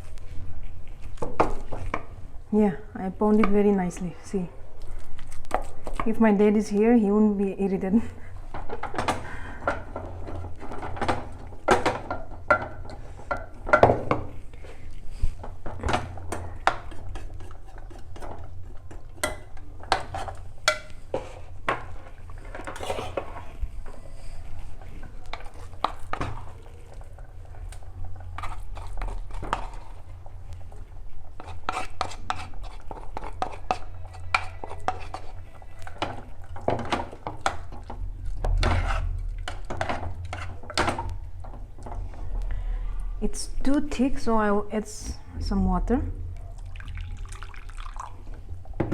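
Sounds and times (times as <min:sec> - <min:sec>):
metal utensils clinking on pots: 0:15.7 - 0:23.5.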